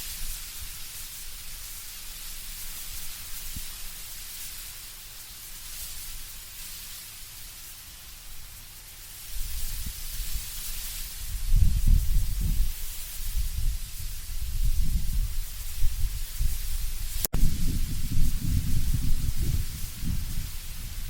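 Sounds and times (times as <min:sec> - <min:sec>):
wind rustling leaves: 0:00.0 - 0:21.0
rumble of strong wind gusts: 0:09.4 - 0:21.0.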